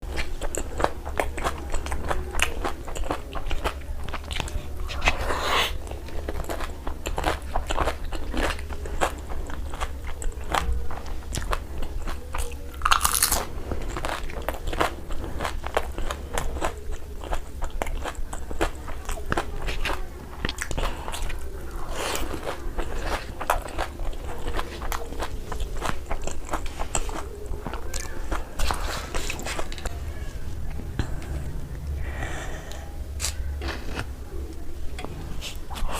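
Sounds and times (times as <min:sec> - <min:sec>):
person chewing crunchy food: 0:00.0 - 0:35.9
low hum: 0:20.0 - 0:35.9.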